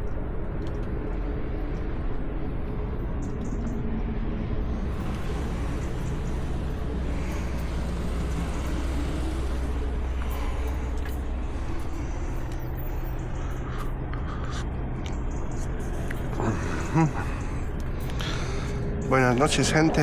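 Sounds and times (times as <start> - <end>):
truck engine droning: 4.6 - 20.0.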